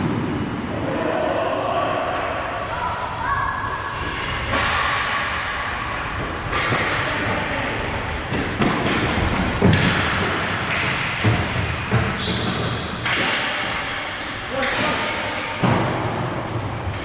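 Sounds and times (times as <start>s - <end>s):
echoing arena din: 0.0s - 17.0s
sticks and puck hitting boards: 6.1s - 7.6s, 8.3s - 17.0s
short high squeaks: 11.7s - 12.8s.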